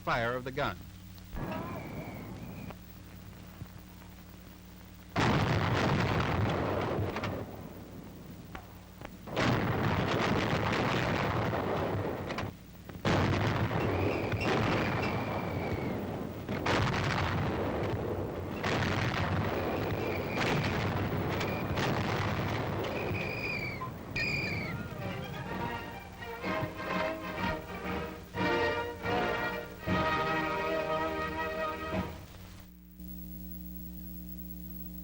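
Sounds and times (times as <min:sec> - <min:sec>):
heavy guns firing: 0:01.4 - 0:02.7, 0:05.2 - 0:07.8, 0:09.3 - 0:32.2.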